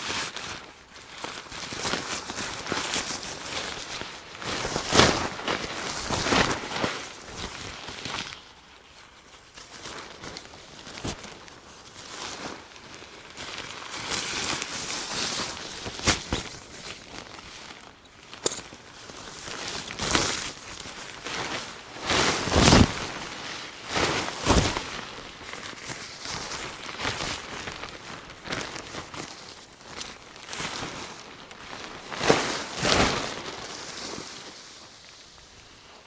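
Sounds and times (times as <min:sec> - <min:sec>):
tarp rustling and crinkling: 0:00.0 - 0:36.0
footsteps: 0:18.4 - 0:18.8.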